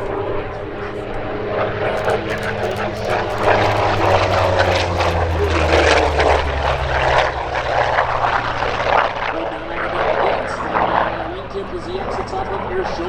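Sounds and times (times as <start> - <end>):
aircraft engine drone passing: 2.0 - 9.4.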